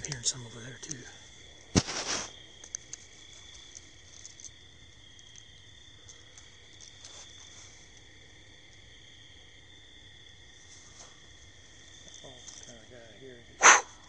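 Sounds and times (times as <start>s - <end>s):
faint ticks: 0.0s - 1.2s, 2.6s - 8.1s
night insects chirping: 0.0s - 14.0s
brief rustle: 1.8s - 2.8s.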